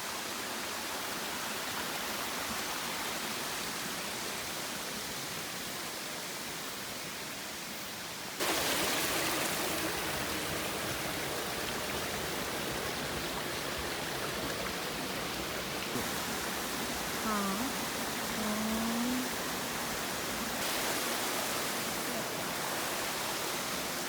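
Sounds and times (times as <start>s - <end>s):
waterfall rushing: 8.4s - 24.0s.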